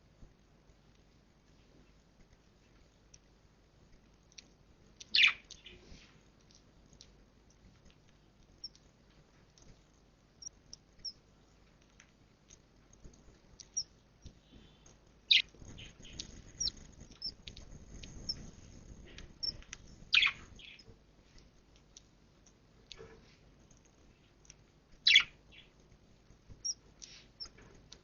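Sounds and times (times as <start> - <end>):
soft rustle: 0.0 - 28.0
budgies chirping: 5.0 - 6.1, 14.5 - 20.9, 25.0 - 25.8, 26.6 - 27.6.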